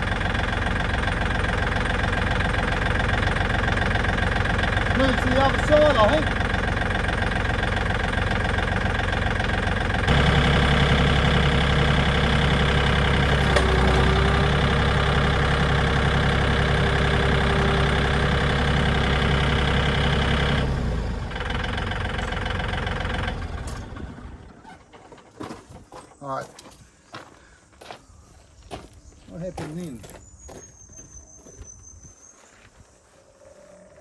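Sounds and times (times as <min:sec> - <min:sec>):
tractor engine running: 0:00.0 - 0:25.3.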